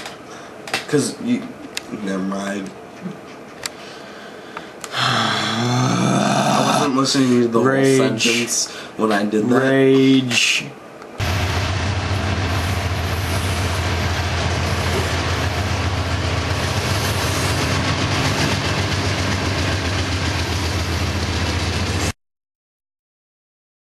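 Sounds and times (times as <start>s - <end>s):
low engine hum: 11.2s - 22.1s
train rumbling by: 11.2s - 22.2s.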